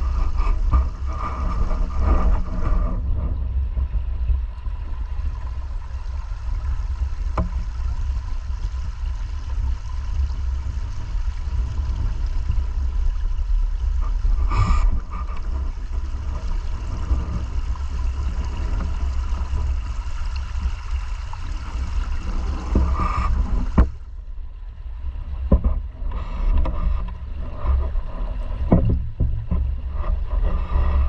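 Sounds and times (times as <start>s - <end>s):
river water flowing: 4.5s - 25.4s.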